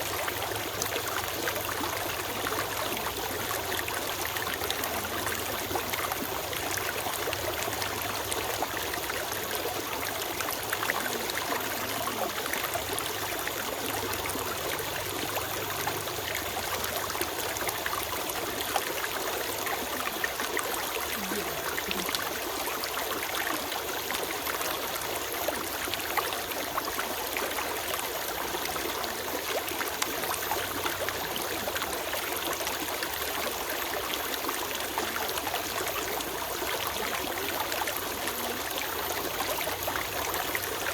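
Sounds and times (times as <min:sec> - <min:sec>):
stream trickling over stones: 0:00.0 - 0:40.9.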